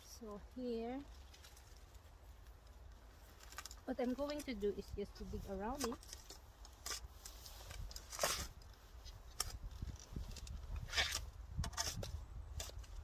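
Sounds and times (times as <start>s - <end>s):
garden tool digging into soil: 3.3s - 13.0s.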